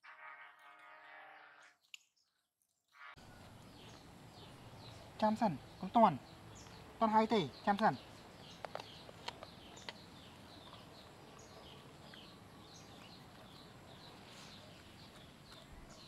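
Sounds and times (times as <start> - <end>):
small bird chirping: 3.2 - 16.0.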